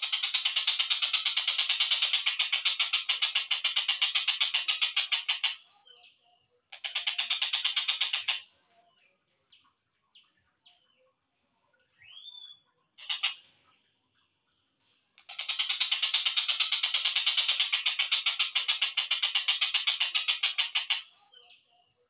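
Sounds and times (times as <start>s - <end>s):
kingfisher rattling call: 0.0s - 5.6s, 6.7s - 8.4s, 13.0s - 13.4s, 15.2s - 21.1s
faint bird chirps: 4.6s - 22.0s.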